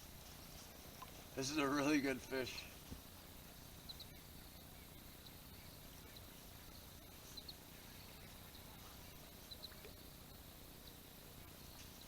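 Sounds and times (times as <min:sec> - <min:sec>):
faint high chirps: 0:03.7 - 0:12.0.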